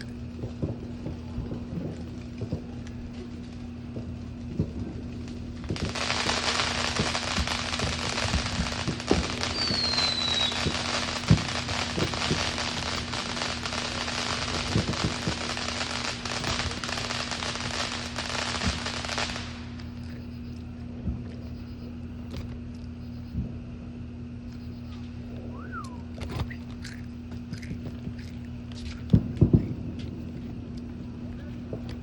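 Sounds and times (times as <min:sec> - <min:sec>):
fireworks crackling: 0:00.0 - 0:20.1, 0:24.9 - 0:32.0
steady low hum: 0:00.0 - 0:32.0
firework whistle falling: 0:05.7 - 0:19.8, 0:24.8 - 0:26.6.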